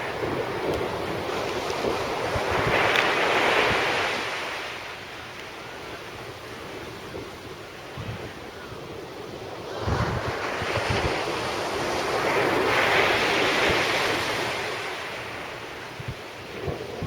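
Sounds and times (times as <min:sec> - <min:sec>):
surf breaking on beach: 0:00.0 - 0:05.2, 0:09.3 - 0:17.0
wind buffeting microphone: 0:00.0 - 0:17.0.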